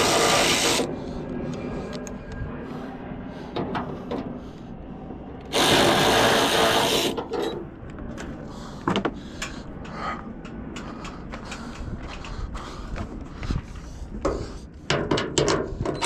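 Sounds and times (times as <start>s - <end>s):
power drill running: 0.0s - 0.9s, 5.5s - 7.2s
tools clicking and knocking on metal: 14.9s - 16.0s.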